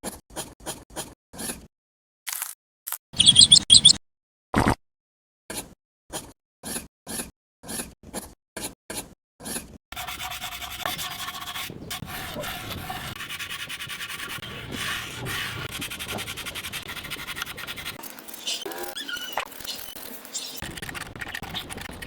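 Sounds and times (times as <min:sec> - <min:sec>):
rasping of filing or sanding: 0:09.9 - 0:22.0.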